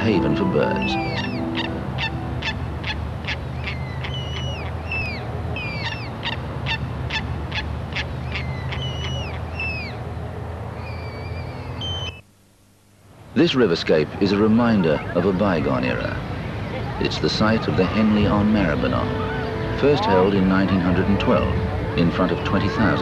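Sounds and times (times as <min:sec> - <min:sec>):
short high bird calls: 0:00.6 - 0:10.0.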